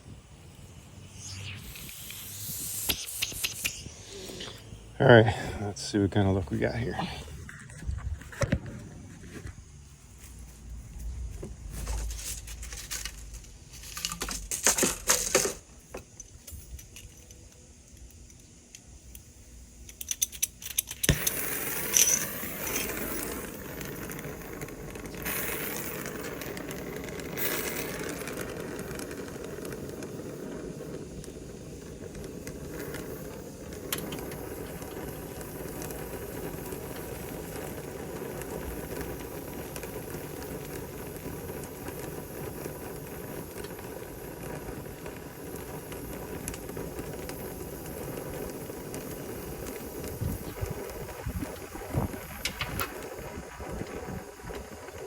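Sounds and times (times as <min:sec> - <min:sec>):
steady rushing noise: 0:00.0 - 0:13.9.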